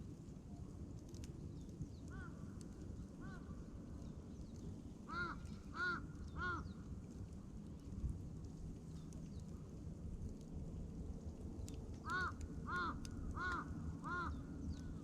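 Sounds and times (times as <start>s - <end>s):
campfire rushing and crackling: 0.0s - 15.0s
crow cawing: 5.1s - 6.6s, 12.1s - 14.4s.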